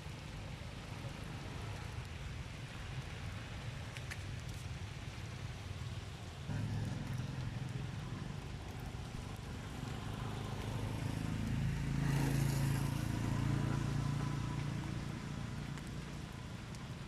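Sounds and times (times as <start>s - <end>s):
vehicle engine passing by: 6.5s - 17.0s.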